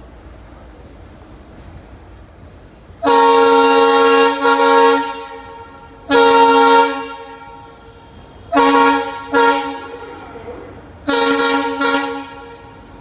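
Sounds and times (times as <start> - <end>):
locomotive air horn blasts: 3.0 - 13.0.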